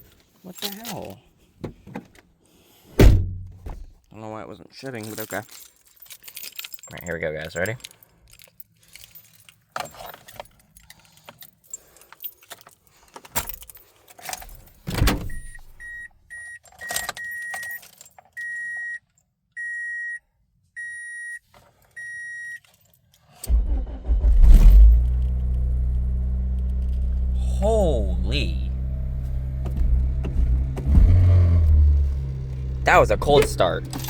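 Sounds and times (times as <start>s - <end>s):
keys jangling: 0.0s - 1.1s, 4.9s - 15.6s, 16.6s - 18.4s, 32.1s - 34.0s
car engine cranking and starting: 23.4s - 34.0s.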